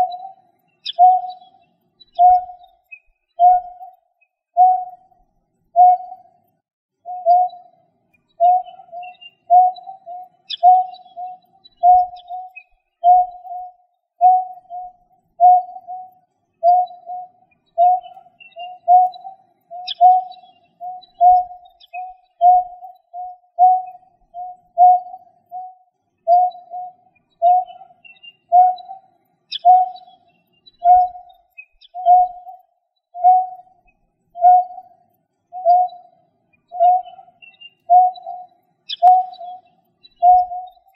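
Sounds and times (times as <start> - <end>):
bird hooting notes: 0.0 - 1.5, 2.2 - 2.7, 5.8 - 6.2, 8.4 - 30.1, 31.9 - 32.6, 33.2 - 33.7, 34.4 - 34.9, 36.7 - 39.6, 40.2 - 40.9
faint high bird chirps: 0.0 - 40.9.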